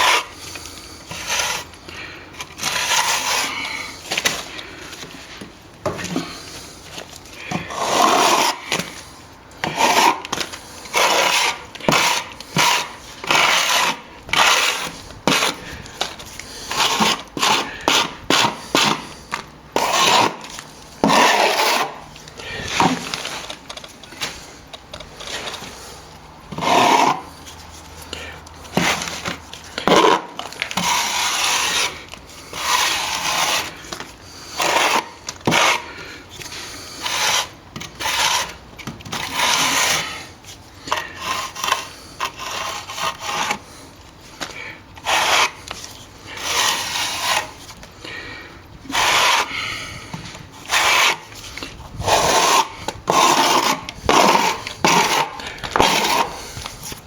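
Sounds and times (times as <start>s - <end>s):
hand tool rasping on plaster: 0.0s - 5.4s, 6.0s - 57.0s.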